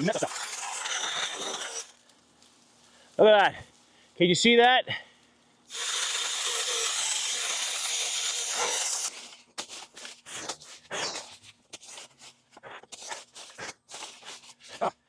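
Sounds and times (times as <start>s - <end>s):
small chainsaw running: 0.0s - 1.9s, 5.7s - 9.4s
brush and twigs crackling: 0.0s - 4.4s, 5.1s - 5.7s, 8.6s - 14.9s.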